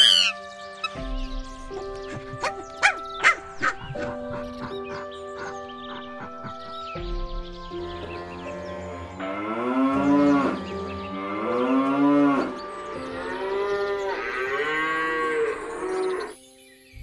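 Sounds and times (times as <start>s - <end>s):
cow mooing: 11.2s - 16.3s.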